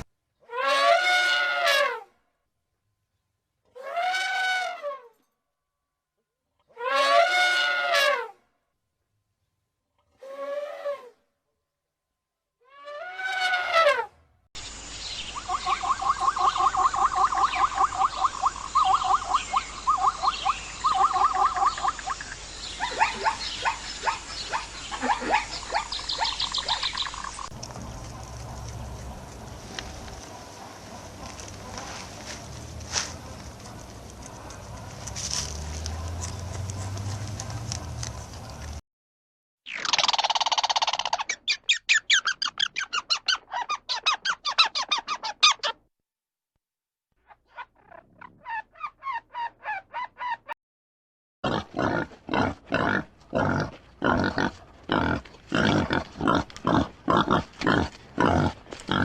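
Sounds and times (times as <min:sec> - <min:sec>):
bird calling with rattling trill: 0:14.6 - 0:28.0.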